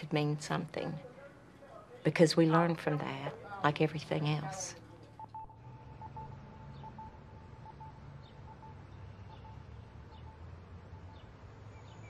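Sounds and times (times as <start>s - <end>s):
low hum: 5.2s - 12.0s
thin steady tone: 5.2s - 12.0s
small birds chirping: 5.9s - 12.0s.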